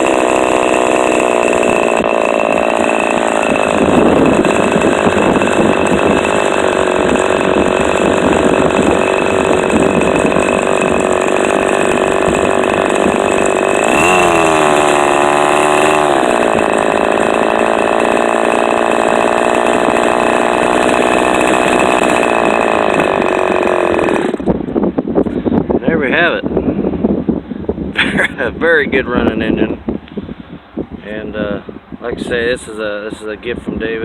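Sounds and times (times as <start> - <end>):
model engine running: 0.0 - 24.7.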